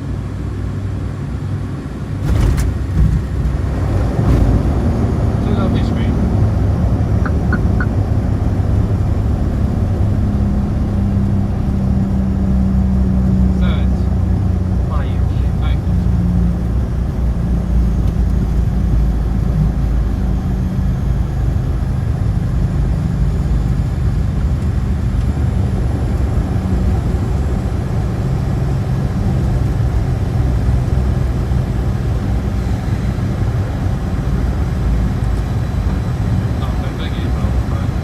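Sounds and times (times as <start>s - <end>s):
turboprop engines droning: 0.0s - 38.0s.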